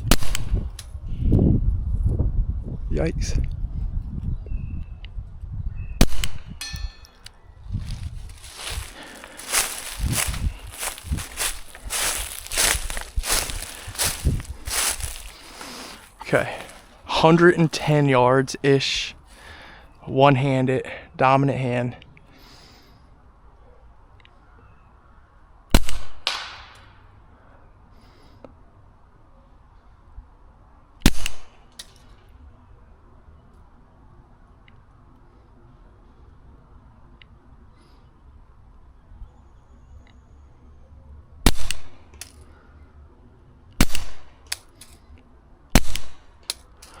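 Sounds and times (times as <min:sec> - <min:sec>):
suppressed pistol shot: 0:06.0 - 0:06.4.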